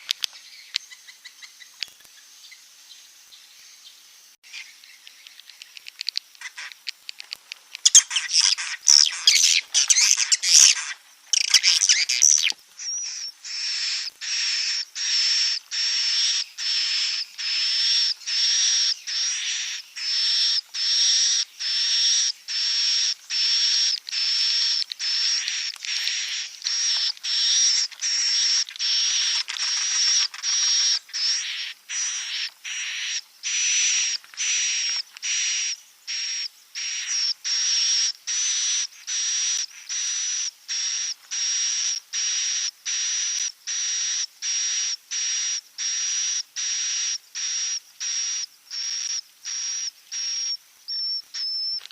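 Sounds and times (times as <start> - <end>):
raspy whistled swiftlet chirps: 7.8 - 41.6, 45.2 - 51.8
swiftlets chittering and clicking: 23.3 - 31.3.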